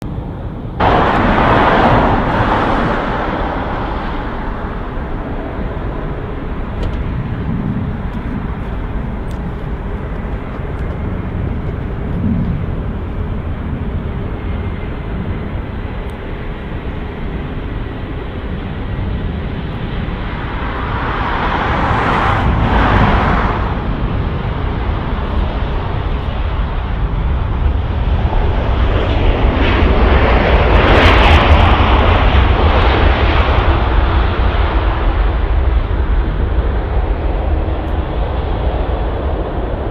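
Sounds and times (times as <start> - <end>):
aircraft noise: 0.0 - 39.9
airliner engine on approach: 0.0 - 39.9
road traffic rumble: 0.0 - 39.9
vehicle passing close: 0.8 - 13.2, 20.4 - 25.2.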